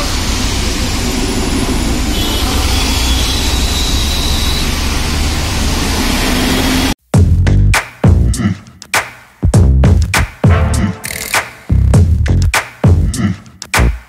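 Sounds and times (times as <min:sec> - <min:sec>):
road traffic rumble and hiss: 0:00.0 - 0:07.0
loud music beat: 0:07.0 - 0:14.0.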